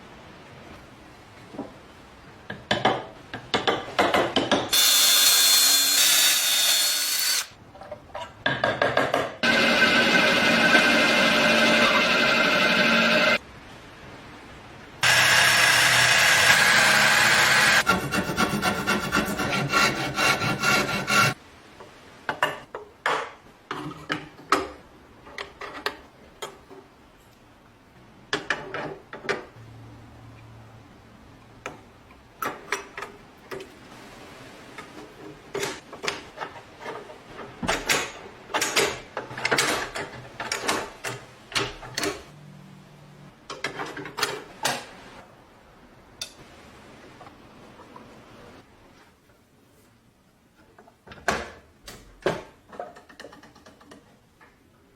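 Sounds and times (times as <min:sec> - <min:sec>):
power tool on metal: 0:04.7 - 0:07.6, 0:09.4 - 0:13.4, 0:15.0 - 0:17.9.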